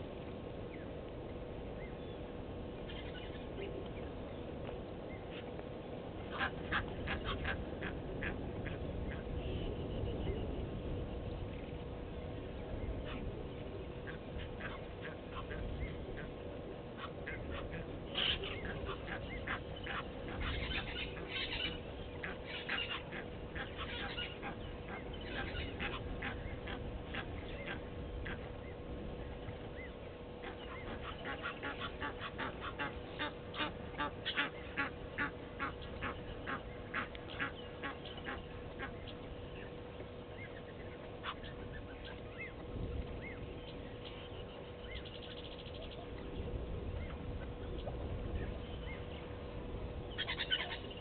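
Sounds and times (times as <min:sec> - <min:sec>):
faint constant hum: 0:00.0 - 0:51.0
birds chattering calls: 0:06.2 - 0:51.0.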